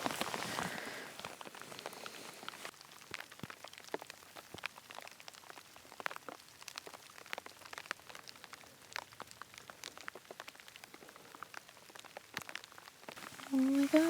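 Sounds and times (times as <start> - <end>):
rain drops pattering: 0.0 - 14.0.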